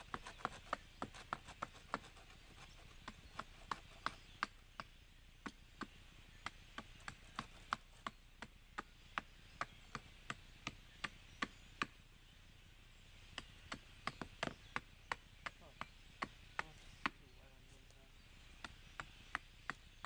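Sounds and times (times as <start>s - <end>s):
chopping strikes on wood: 3.0s - 12.0s, 13.3s - 17.2s, 18.6s - 19.9s.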